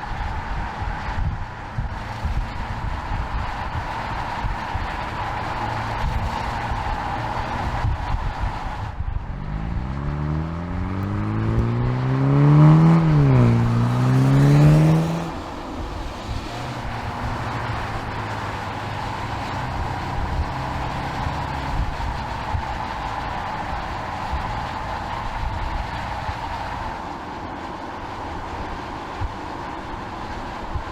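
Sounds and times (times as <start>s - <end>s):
background traffic noise: 0.0s - 30.9s
car engine accelerating hard: 0.0s - 30.9s.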